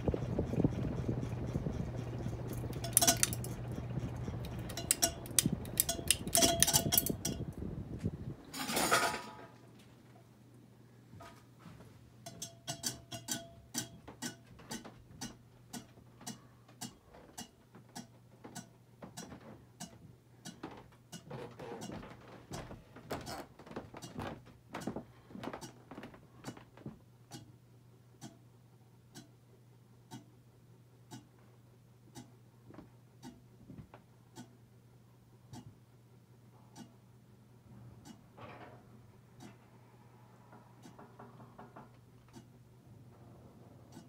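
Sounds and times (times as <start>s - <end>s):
ceiling fan humming: 0.0s - 44.0s
light ticking clicks: 27.3s - 27.5s, 28.2s - 28.4s, 29.1s - 29.4s, 30.1s - 30.3s, 31.1s - 31.3s, 32.1s - 32.3s.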